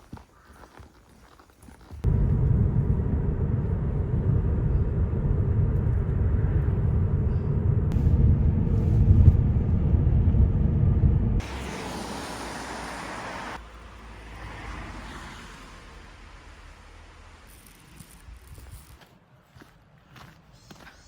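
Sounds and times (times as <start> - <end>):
loud low rumble: 2.0 - 12.4.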